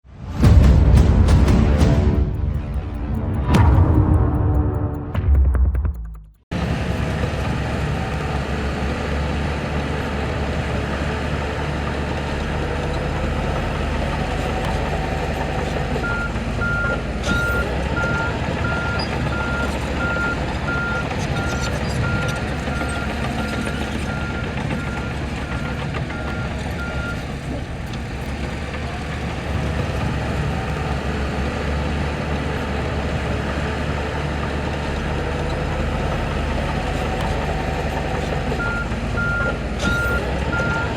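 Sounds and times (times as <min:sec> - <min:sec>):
heavy diesel machinery running: 0:00.1 - 0:05.3, 0:06.5 - 0:40.9
reversing alarm beeping: 0:16.0 - 0:27.2, 0:38.6 - 0:40.9.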